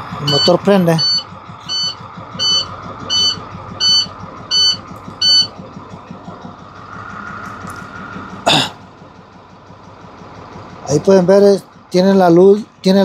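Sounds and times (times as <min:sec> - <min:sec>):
diesel engine running: 0:00.0 - 0:13.0
dashboard warning buzzer beeping: 0:00.2 - 0:05.6.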